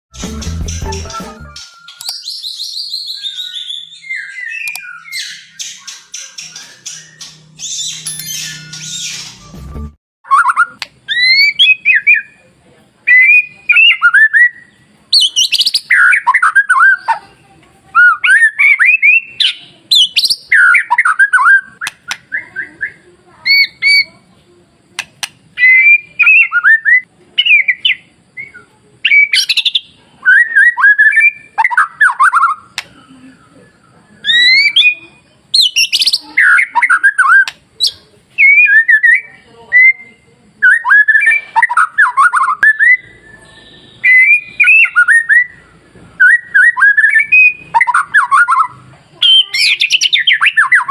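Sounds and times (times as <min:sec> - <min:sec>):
songbird whistling and warbling: 0:00.2 - 0:12.4, 0:13.0 - 0:24.2, 0:25.2 - 0:50.9
sharp bird clicks: 0:01.6 - 0:02.8, 0:04.5 - 0:09.4, 0:18.3 - 0:24.0, 0:24.9 - 0:26.5, 0:31.2 - 0:33.0, 0:35.6 - 0:38.6.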